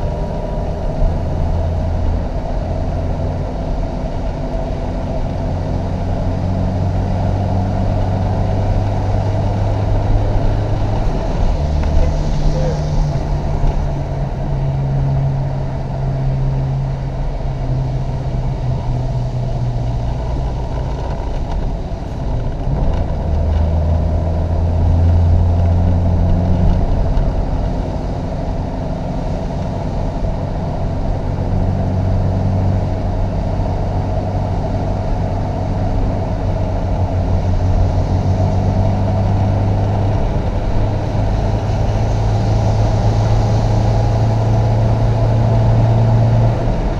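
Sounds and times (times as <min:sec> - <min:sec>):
car engine running under load: 0:00.0 - 0:46.9.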